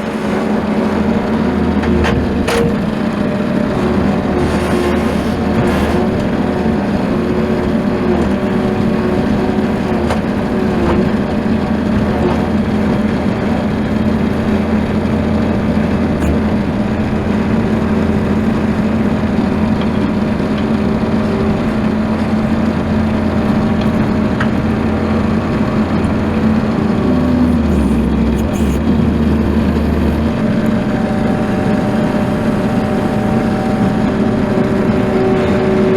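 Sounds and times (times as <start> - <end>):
loader engine running: 0.0 - 35.9.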